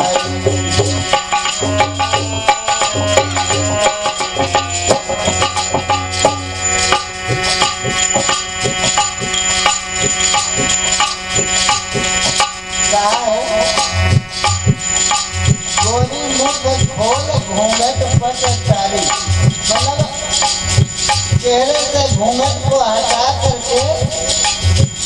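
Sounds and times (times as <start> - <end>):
held accompanying notes: 0.0 - 25.0
tabla playing quick rhythm: 0.0 - 25.0.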